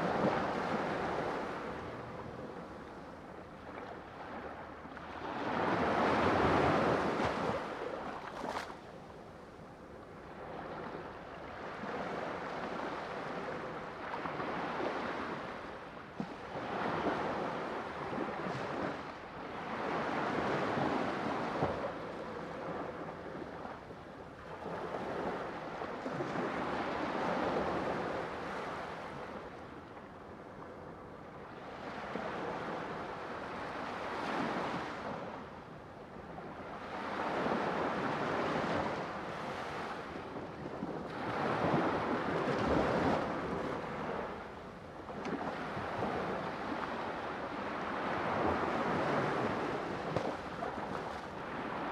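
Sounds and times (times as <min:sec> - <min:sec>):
sea waves breaking on shore: 0:36.8 - 0:51.9.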